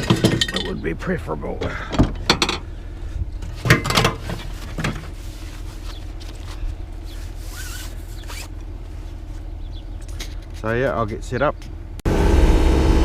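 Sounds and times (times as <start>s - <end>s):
low engine hum: 4.2s - 13.0s
zip-like rasps: 7.1s - 8.5s.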